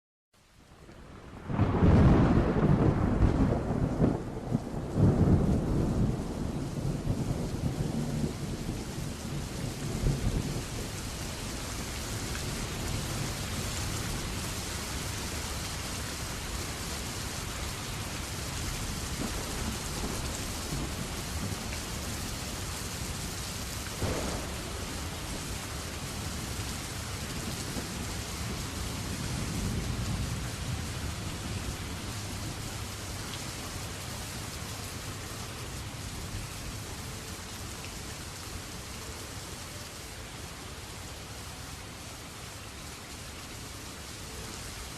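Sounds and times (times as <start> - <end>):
heavy rain: 0.4 - 44.9
thunder rumbling: 1.2 - 11.6, 18.3 - 33.0.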